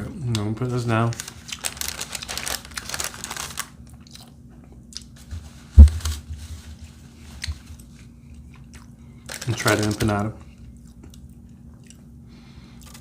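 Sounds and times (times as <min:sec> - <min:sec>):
paper wrapper rustling: 0:00.7 - 0:03.8, 0:05.2 - 0:07.3, 0:09.3 - 0:10.1.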